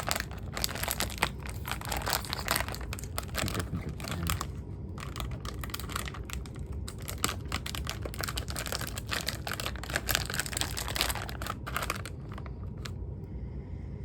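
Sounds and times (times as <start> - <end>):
plastic snack bag crinkling: 0.0 - 13.0.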